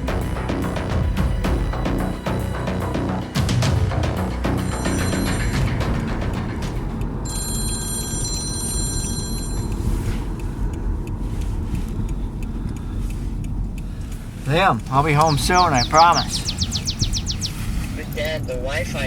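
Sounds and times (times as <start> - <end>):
phone ringing: 14.5 - 17.0.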